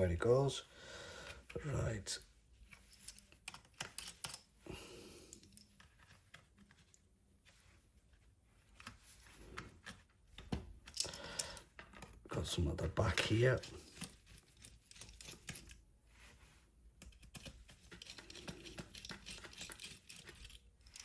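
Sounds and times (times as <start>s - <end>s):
small parts clicking and tapping: 2.6s - 4.6s, 8.7s - 12.3s, 13.1s - 15.9s, 16.9s - 21.0s.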